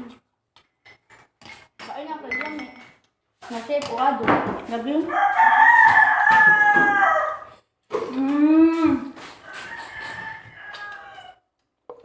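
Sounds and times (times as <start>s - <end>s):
roosters crowing: 5.1s - 7.6s, 9.2s - 11.5s.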